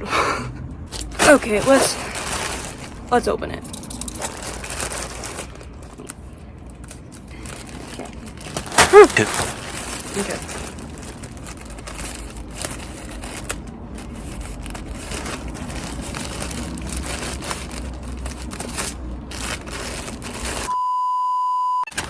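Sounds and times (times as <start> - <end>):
packaging rustling and crinkling: 0.9 - 20.7
loud steady beep tone: 20.7 - 21.9.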